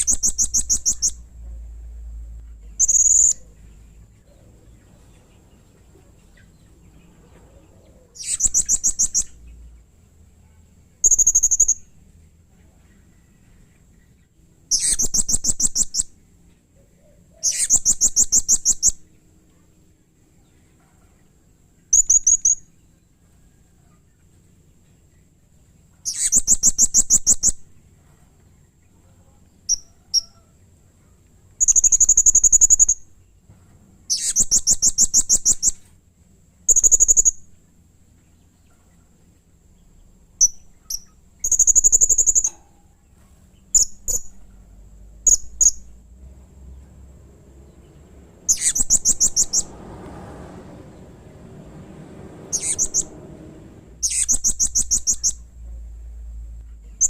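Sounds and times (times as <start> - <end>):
parrot trilled calls: 2.8 - 3.6, 40.4 - 42.9, 48.4 - 49.7, 52.4 - 53.1, 54.0 - 55.5.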